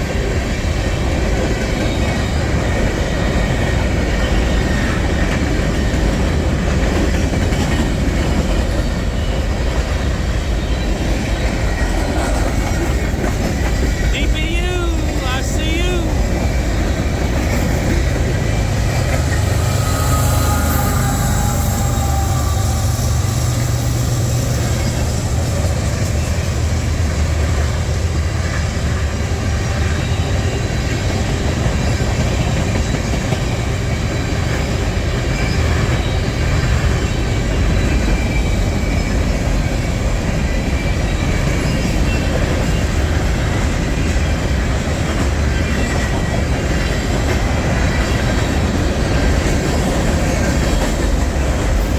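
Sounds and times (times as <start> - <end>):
train wheels rumbling on rail: 0.0 - 51.9
high wheel squeals: 18.2 - 25.5.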